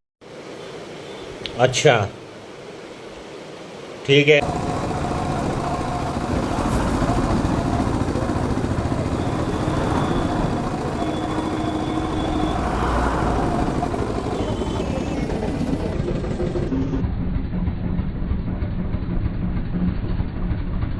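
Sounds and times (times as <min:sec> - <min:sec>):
wind and road noise: 0:04.4 - 0:15.4
motorcycle engine running: 0:04.4 - 0:17.0.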